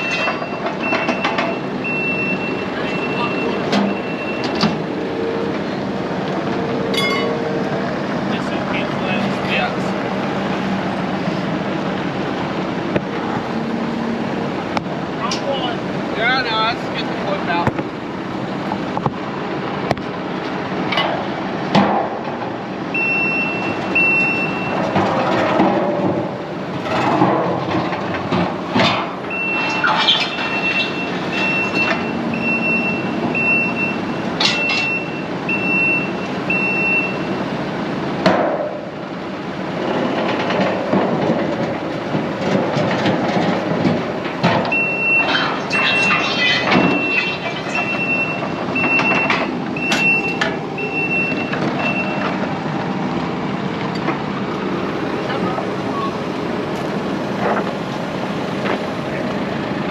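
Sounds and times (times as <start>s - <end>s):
reverse alarm beeping: 0.0s - 5.5s, 6.6s - 7.5s, 22.9s - 24.9s, 29.3s - 37.4s, 44.7s - 52.3s
sharp metallic knocks: 6.9s - 7.5s.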